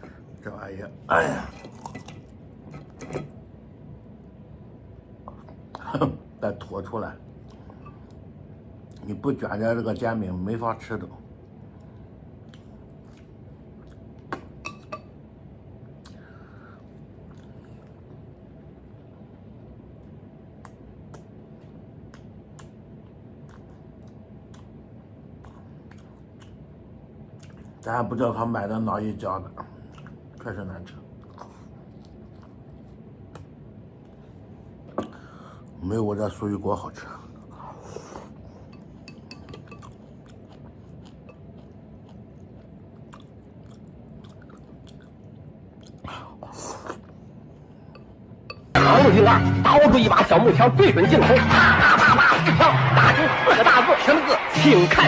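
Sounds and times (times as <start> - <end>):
steady low hum: 0.0 - 53.5
person chewing crisp food: 23.4 - 26.6, 31.1 - 34.2, 37.4 - 47.8.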